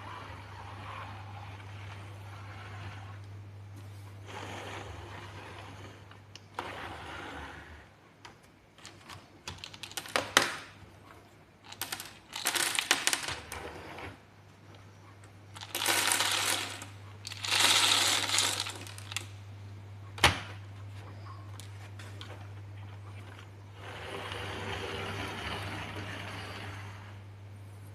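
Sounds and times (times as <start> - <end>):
steady low hum: 0.0 - 9.9, 13.3 - 27.9
plastic blocks clicking and clattering: 8.8 - 10.8, 11.6 - 13.6, 15.6 - 19.3.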